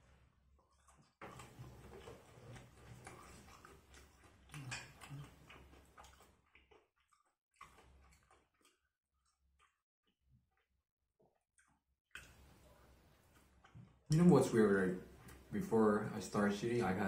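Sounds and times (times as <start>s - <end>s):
person chewing: 0.0s - 14.3s
wet mouth clicks and smacks: 0.7s - 9.8s, 11.6s - 12.5s.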